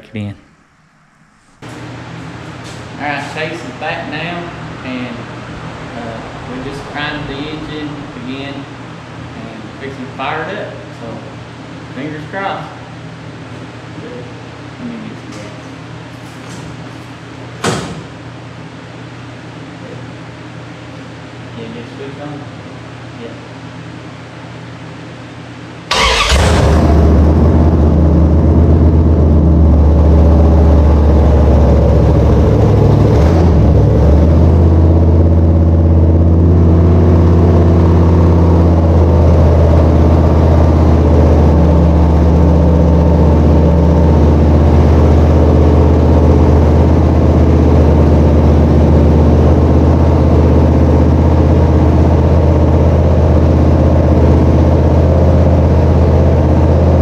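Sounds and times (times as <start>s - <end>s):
loud engine running: 1.4s - 10.4s, 25.9s - 57.0s
engine starting: 25.9s - 27.2s.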